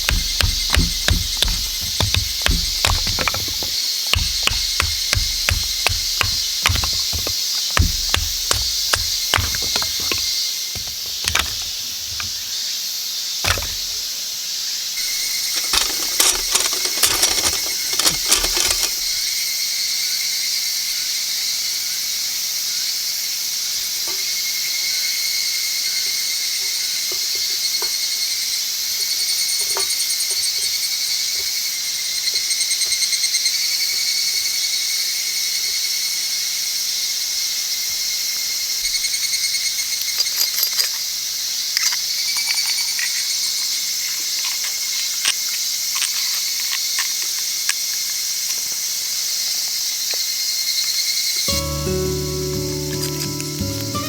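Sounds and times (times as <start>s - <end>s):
clattering: 0.0s - 12.5s, 13.4s - 14.0s, 15.4s - 19.2s
sharp wooden knocks: 0.0s - 12.5s, 13.4s - 14.0s, 15.5s - 19.2s
insects trilling: 0.0s - 51.5s.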